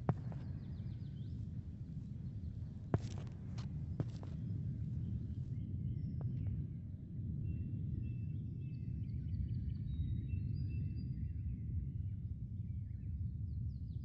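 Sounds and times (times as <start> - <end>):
low background rumble: 0.0 - 8.7.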